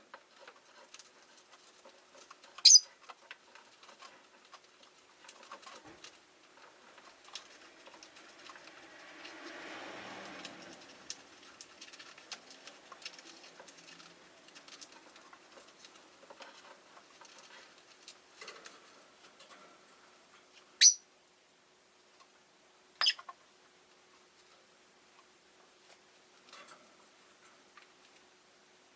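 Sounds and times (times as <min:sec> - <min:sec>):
beaks and feet clicking scratching: 0:00.1 - 0:19.4
shrill bird chirps: 0:02.6 - 0:02.9, 0:20.8 - 0:21.0, 0:23.0 - 0:23.2.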